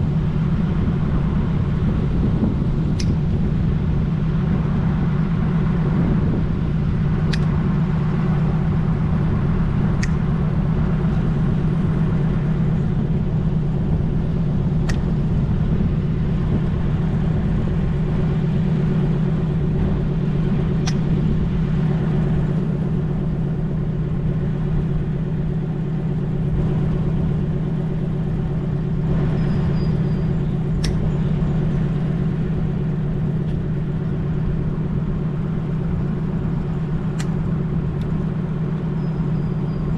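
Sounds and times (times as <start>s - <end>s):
loud low drone: 0.0s - 39.9s
sharp clicks: 3.0s - 3.2s, 7.3s - 7.6s, 10.0s - 10.2s, 20.8s - 21.1s, 30.8s - 31.1s, 37.1s - 37.4s.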